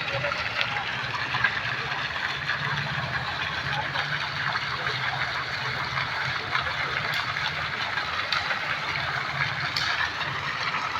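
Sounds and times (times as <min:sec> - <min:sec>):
fountain water splashing: 0:00.0 - 0:10.9.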